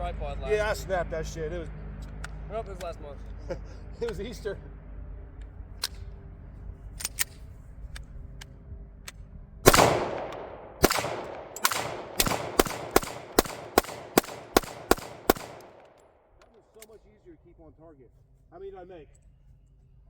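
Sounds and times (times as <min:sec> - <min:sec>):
gunshots with echo: 0:09.7 - 0:16.0.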